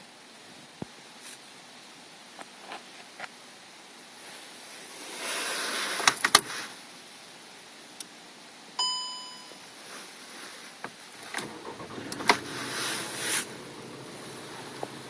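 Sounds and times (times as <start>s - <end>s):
electronic chime: 8.8s - 9.6s
rustling: 9.9s - 15.0s.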